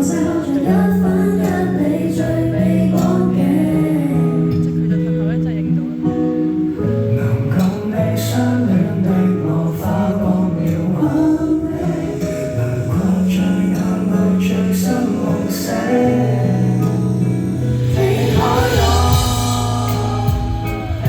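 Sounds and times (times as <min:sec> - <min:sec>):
person singing long held notes: 0:07.2 - 0:21.0
instrumental accompaniment: 0:09.5 - 0:21.0.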